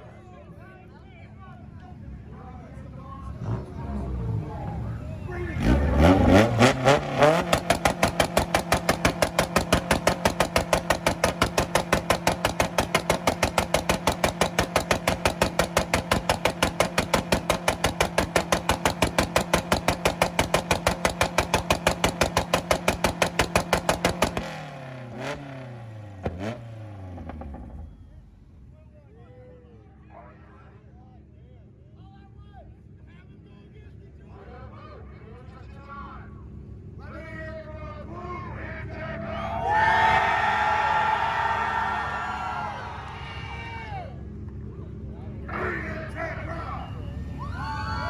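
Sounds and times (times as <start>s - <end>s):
car engine on launch limiter: 3.2s - 28.8s
exhaust pops: 5.6s - 28.1s.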